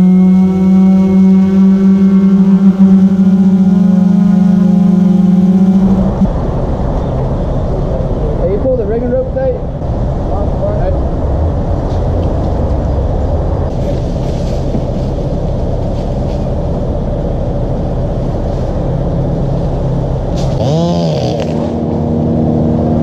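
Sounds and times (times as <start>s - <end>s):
engine rumbling: 0.0s - 23.0s.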